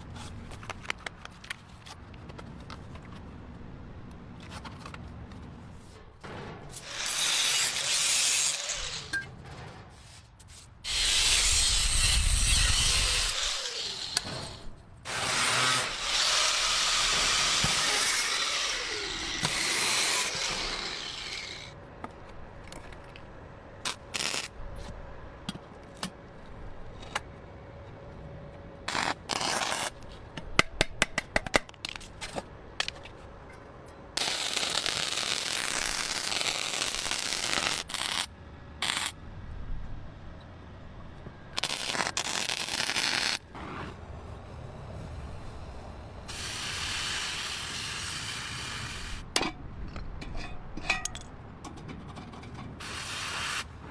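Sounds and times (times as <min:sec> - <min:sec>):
power tool running: 0:10.9 - 0:21.7.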